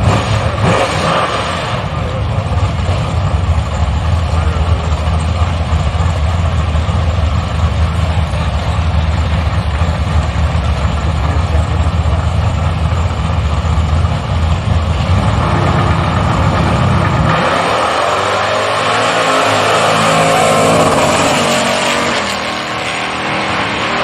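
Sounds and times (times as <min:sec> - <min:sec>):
engine revving higher: 0:00.0 - 0:02.0, 0:15.1 - 0:24.0
engine idling with low rumble: 0:01.6 - 0:17.3.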